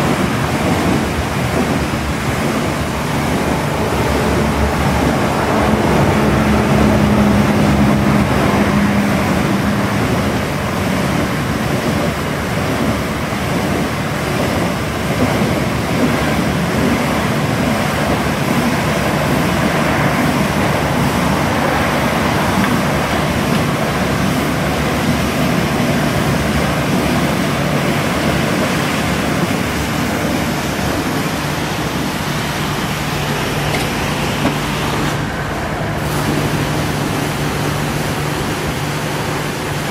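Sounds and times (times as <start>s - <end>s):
high-pressure water spray hissing: 0.0s - 39.9s
low hum: 1.9s - 10.7s.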